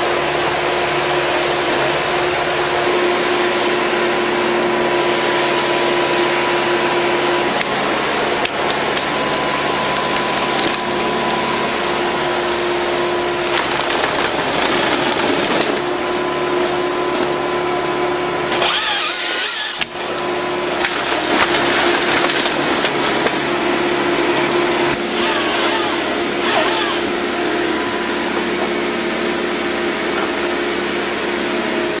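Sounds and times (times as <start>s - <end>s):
harvester engine running: 0.0s - 31.9s
harvester head cutting timber: 7.2s - 17.5s, 18.4s - 28.8s.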